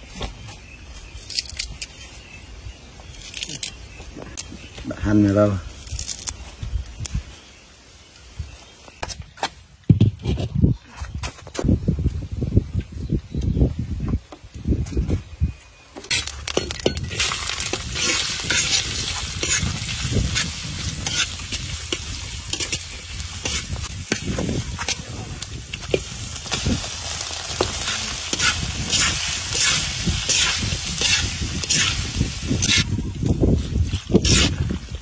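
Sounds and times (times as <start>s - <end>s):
garlic sizzling in hot oil: 16.9s - 32.9s, 33.6s - 34.6s
metal spatula scraping a wok: 17.1s - 24.3s, 28.2s - 32.9s, 34.2s - 34.6s.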